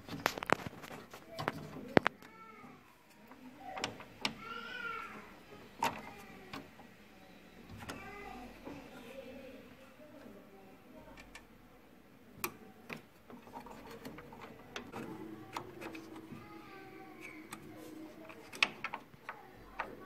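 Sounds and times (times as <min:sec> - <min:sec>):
clicks and knocks of hard parts: 0:03.2 - 0:04.5, 0:05.8 - 0:06.7, 0:12.4 - 0:16.5, 0:17.2 - 0:20.0.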